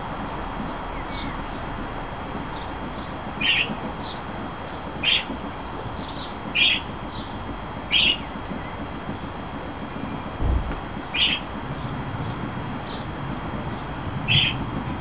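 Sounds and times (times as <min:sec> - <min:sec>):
bird calling loudly: 0:03.4 - 0:03.8, 0:05.0 - 0:05.3, 0:06.1 - 0:06.9, 0:07.9 - 0:08.8, 0:11.1 - 0:11.5, 0:14.3 - 0:14.6
high bird chirps: 0:03.4 - 0:04.2, 0:11.1 - 0:11.5.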